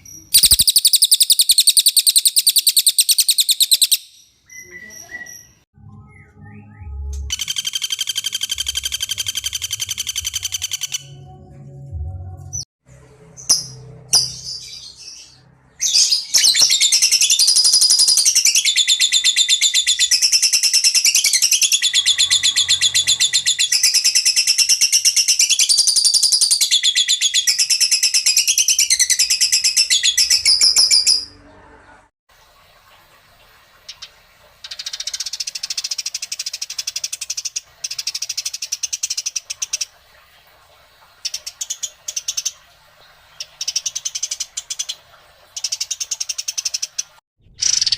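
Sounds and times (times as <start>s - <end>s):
songbird trilling chatter: 0.3s - 5.4s.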